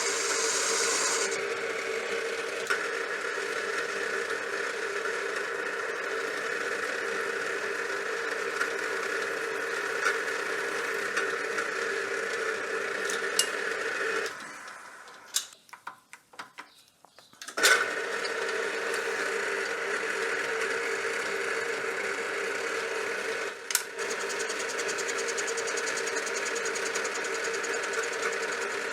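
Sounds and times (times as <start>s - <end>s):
machine tool motor running: 0.0s - 15.4s, 17.6s - 28.9s
clicks and knocks of handling: 15.3s - 17.6s.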